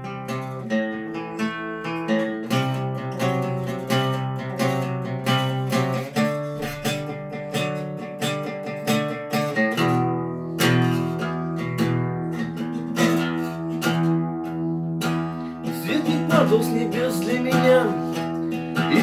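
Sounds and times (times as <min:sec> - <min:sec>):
acoustic guitar strummed: 0:00.0 - 0:19.0.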